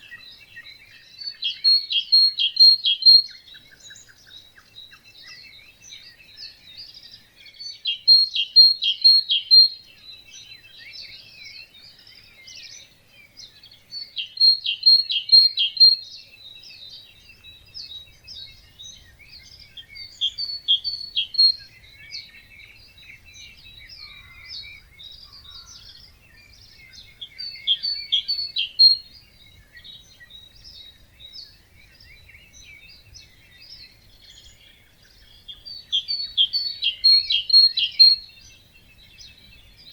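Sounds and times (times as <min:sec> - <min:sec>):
bird song of rapid notes: 0:00.0 - 0:39.9
birds chirping and whistling: 0:00.0 - 0:39.9.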